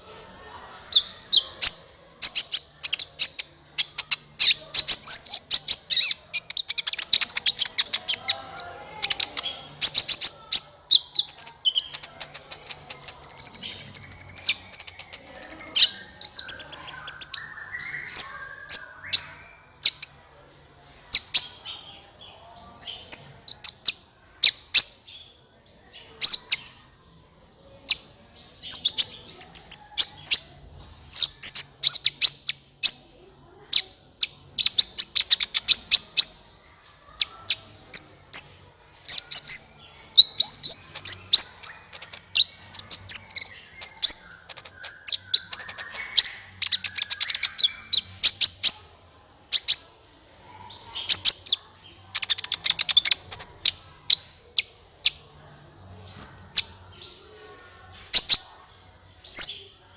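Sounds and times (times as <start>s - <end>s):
sunbird chirps and trills: 2.4s - 20.1s.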